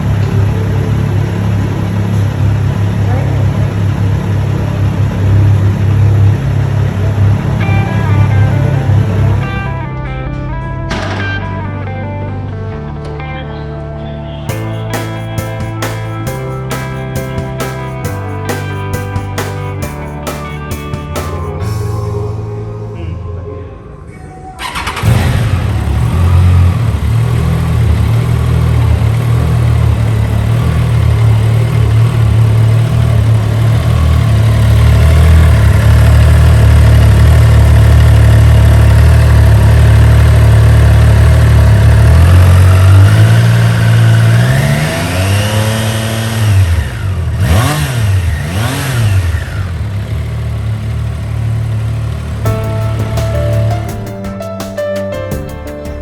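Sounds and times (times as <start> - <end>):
motorcycle engine idling: 0.0 - 9.6, 14.5 - 22.4, 24.6 - 54.2
engine revving: 0.0 - 9.8, 24.6 - 53.2.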